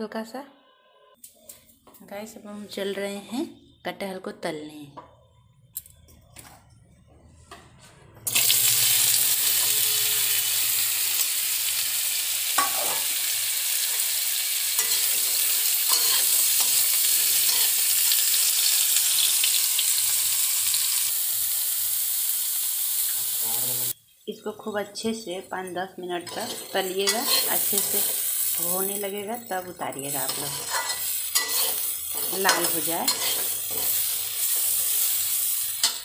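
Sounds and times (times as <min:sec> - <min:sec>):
food sizzling in hot oil: 0:08.3 - 0:24.2, 0:25.4 - 0:36.0
slotted spoon stirring: 0:14.8 - 0:17.8, 0:26.3 - 0:28.2, 0:30.2 - 0:34.8.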